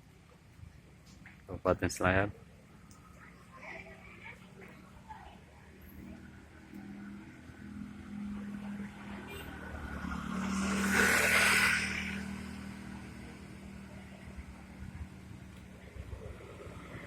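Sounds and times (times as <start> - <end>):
vehicle engine hum: 0.0 - 17.0
tyre hiss on wet road: 9.8 - 13.2.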